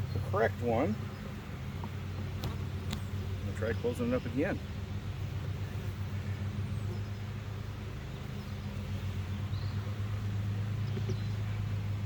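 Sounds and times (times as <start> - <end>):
honeybees buzzing: 0.0 - 12.0
faint bird chirps: 10.7 - 11.6.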